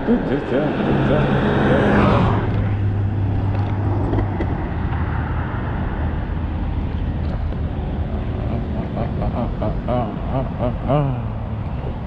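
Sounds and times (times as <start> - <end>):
vehicle wind and road noise: 0.0 - 12.0.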